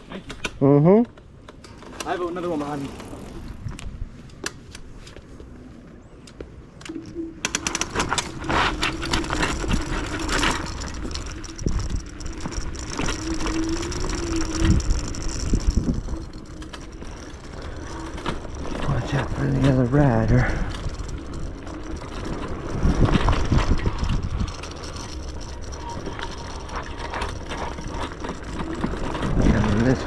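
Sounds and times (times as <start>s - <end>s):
electric scooter motor whine: 6.8s - 30.0s
frame and suspension rattling: 6.9s - 30.0s.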